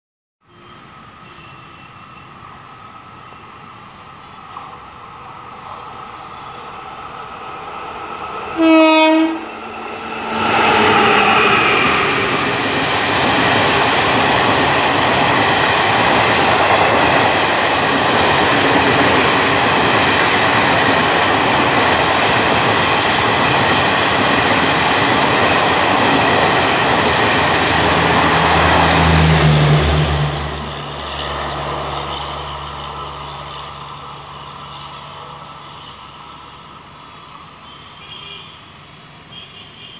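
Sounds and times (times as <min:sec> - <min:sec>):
train wheel-on-rail noise: 0:00.5 - 0:39.9
locomotive horn blast: 0:08.6 - 0:09.6.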